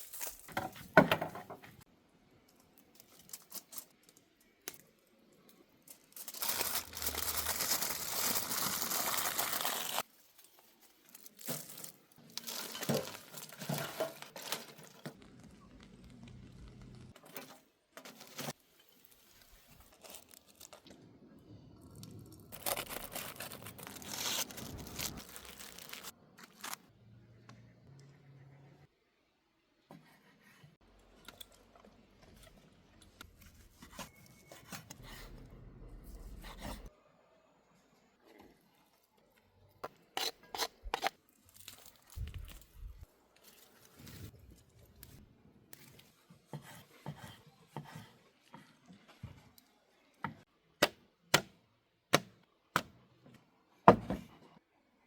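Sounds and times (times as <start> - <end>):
aluminium foil crinkling and tearing: 0.0 - 0.5, 2.6 - 21.0, 21.8 - 26.8, 41.0 - 45.2
foil rustling: 0.0 - 0.6, 5.9 - 16.0, 22.6 - 26.8.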